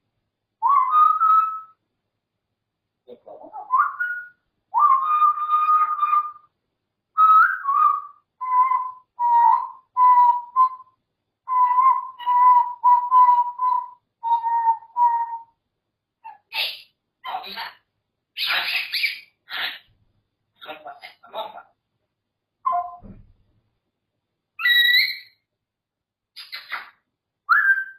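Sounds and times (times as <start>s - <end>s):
parrot whistling: 0.6s - 1.8s, 3.5s - 6.5s, 7.2s - 15.6s, 18.4s - 19.8s, 22.6s - 23.0s, 24.6s - 25.4s, 26.4s - 27.9s.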